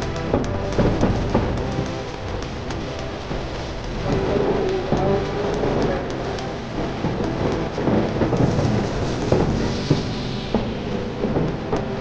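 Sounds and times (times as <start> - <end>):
firework bangs: 0.0 - 12.0
fireworks rumbling and crackling: 0.0 - 12.0.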